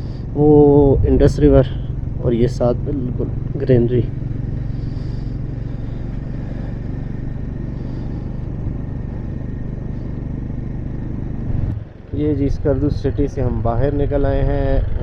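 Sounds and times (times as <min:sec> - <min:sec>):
motorcycle engine running: 0:00.0 - 0:15.0
road noise: 0:00.0 - 0:15.0.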